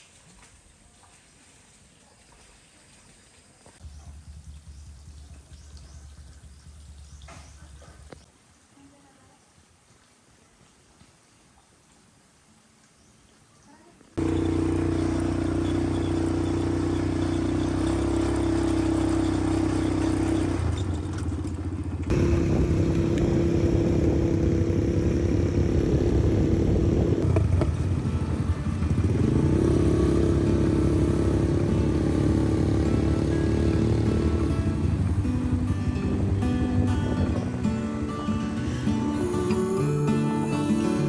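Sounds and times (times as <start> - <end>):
small engine running: 3.8 - 8.2, 14.2 - 37.6.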